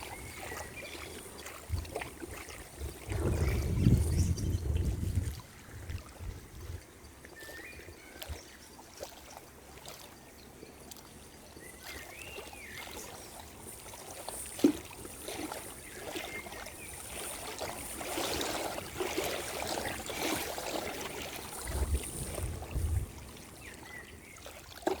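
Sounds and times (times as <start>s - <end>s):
water trickling and lapping: 0.0s - 25.0s.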